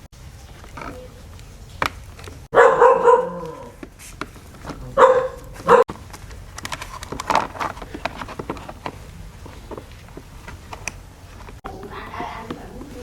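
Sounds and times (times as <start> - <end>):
dog barking: 2.5 - 3.8, 4.9 - 5.9.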